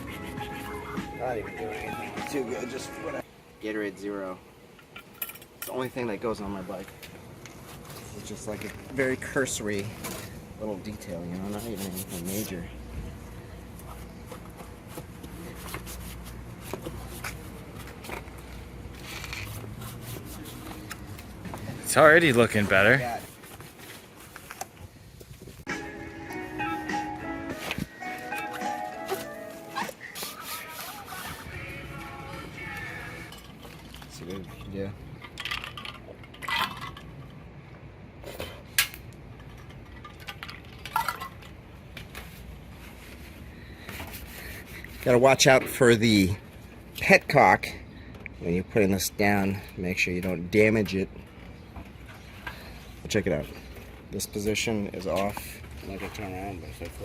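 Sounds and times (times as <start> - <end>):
low steady background noise: 1.2 - 25.6, 31.5 - 57.0
cloth rag rubbing: 11.4 - 12.5, 19.0 - 20.9, 28.5 - 31.6.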